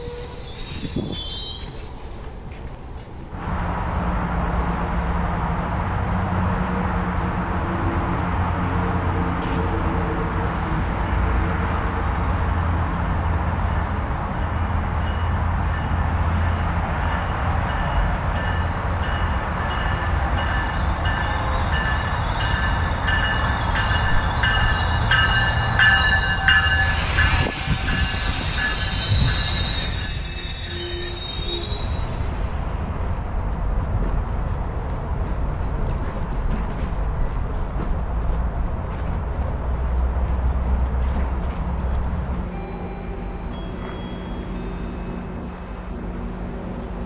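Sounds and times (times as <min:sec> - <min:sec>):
brakes and wheels squealing: 0:00.0 - 0:03.2, 0:18.4 - 0:33.4
diesel train rumble: 0:00.0 - 0:47.0.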